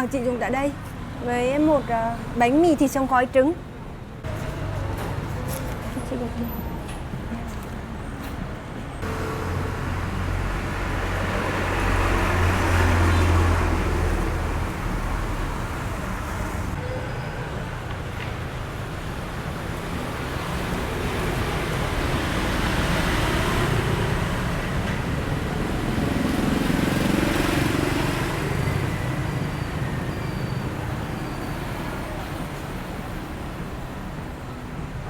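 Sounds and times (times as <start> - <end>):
road noise: 0.0 - 35.0
vehicle passing close: 9.0 - 16.8.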